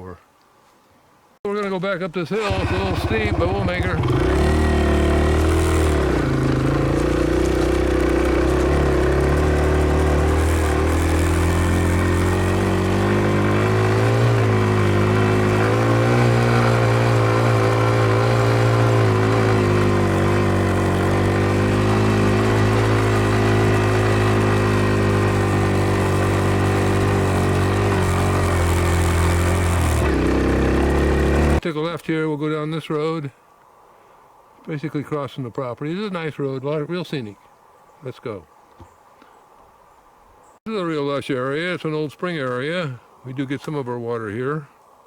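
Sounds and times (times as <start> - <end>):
dirt bike engine under load: 2.4 - 31.6.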